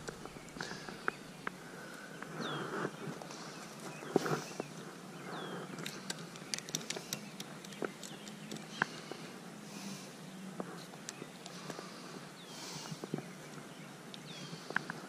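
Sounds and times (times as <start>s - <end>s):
small bird chirping: 0.0s - 9.2s.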